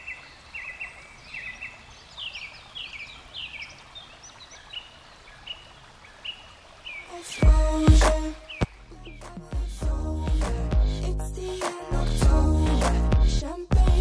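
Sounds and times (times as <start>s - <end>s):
stream rushing: 0.0s - 9.8s
songbird chirping: 0.0s - 10.6s.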